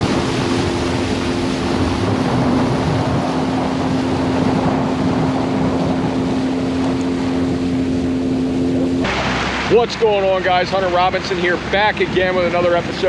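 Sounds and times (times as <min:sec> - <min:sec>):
boat motor running: 0:00.0 - 0:13.0
wind and water rushing: 0:00.0 - 0:13.0.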